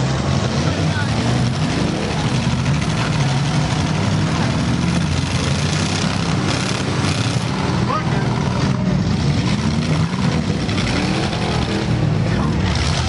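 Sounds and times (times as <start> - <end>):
car engines running together: 0.0 - 13.0.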